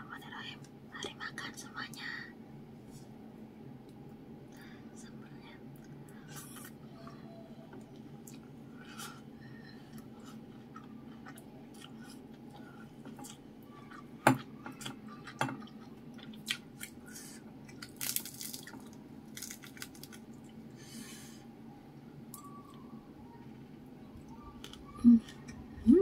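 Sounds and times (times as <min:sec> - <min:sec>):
faint low hum: 0:00.0 - 0:26.0
chewing crispy food: 0:10.0 - 0:14.2, 0:14.8 - 0:17.0, 0:17.6 - 0:20.6.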